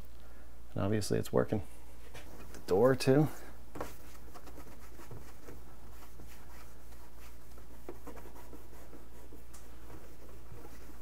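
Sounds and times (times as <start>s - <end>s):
paper towel wiping microwave door: 3.8s - 11.0s.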